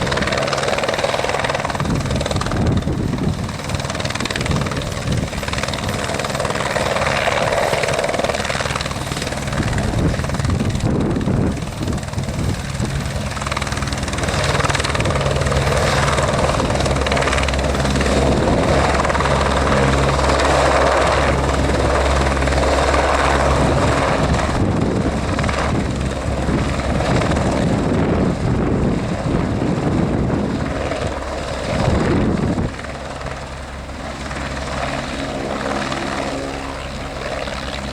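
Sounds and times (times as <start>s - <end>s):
helicopter rotor and engine: 0.0s - 37.9s.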